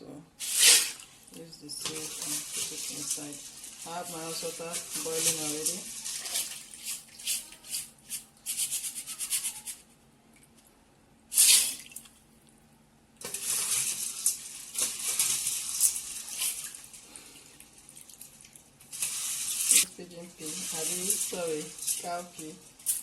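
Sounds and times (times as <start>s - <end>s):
water running and splashing: 0.8s - 7.6s, 13.2s - 23.0s.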